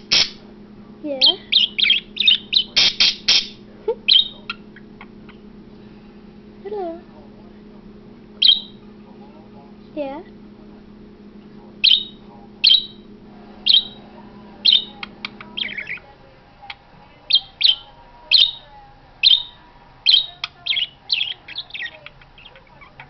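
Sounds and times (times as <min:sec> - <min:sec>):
budgerigar chirping: 0:00.0 - 0:00.4, 0:01.2 - 0:05.4, 0:08.4 - 0:08.8, 0:11.8 - 0:14.0, 0:14.6 - 0:16.1, 0:17.3 - 0:23.0
low background hum: 0:00.0 - 0:23.0.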